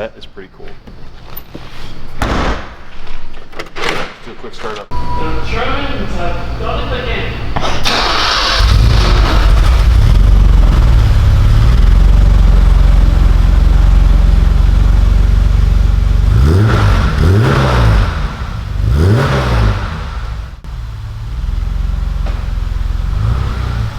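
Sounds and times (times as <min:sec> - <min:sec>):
car engine idling: 0:04.9 - 0:23.9
car engine revving: 0:07.8 - 0:23.9.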